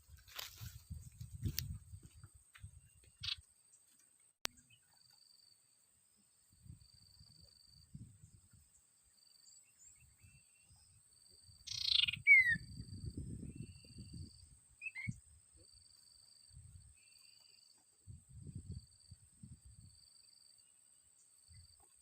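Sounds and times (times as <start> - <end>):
faint repeating chirp: 9.2 - 15.2
bird harsh call with falling whistle: 11.7 - 12.6.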